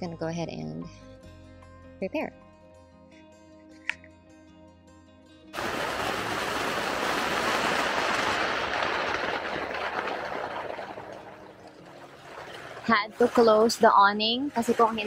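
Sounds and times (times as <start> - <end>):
heavy rain on tent fabric: 5.6 - 12.8.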